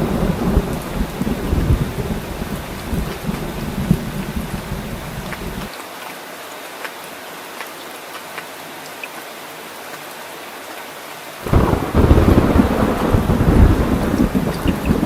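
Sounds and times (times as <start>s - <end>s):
deep rumble of thunder: 0.0s - 5.7s, 11.4s - 15.0s
heavy rain falling: 0.0s - 15.0s.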